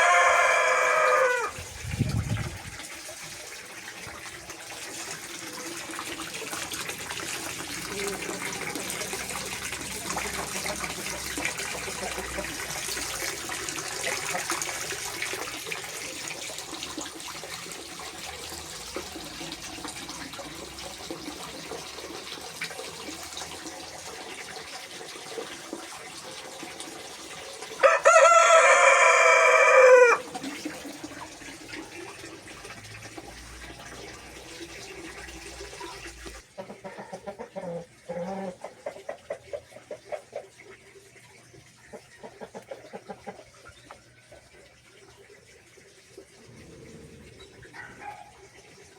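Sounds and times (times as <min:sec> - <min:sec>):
rooster crowing: 0:00.0 - 0:01.6, 0:27.8 - 0:30.2.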